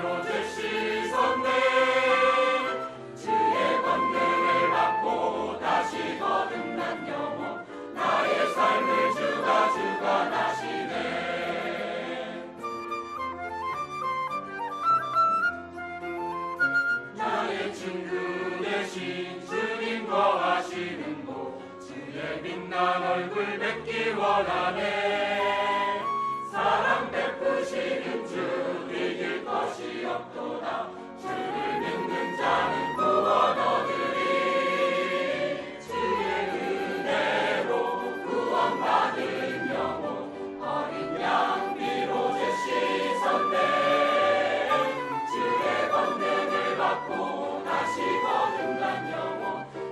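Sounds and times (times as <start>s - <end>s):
church choir singing: 0.0s - 12.9s, 17.0s - 49.9s
instrumental accompaniment: 0.0s - 18.5s, 30.7s - 49.9s.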